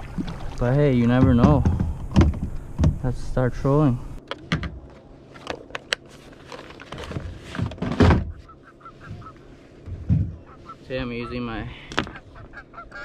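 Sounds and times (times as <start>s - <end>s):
paddle swishing through water: 0.0s - 1.2s
paddle knocking on plastic hull: 0.0s - 3.0s.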